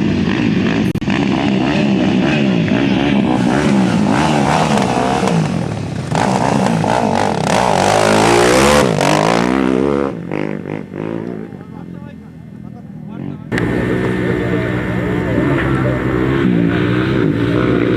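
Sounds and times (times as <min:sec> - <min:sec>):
motorcycle engines revving: 0:00.0 - 0:17.9.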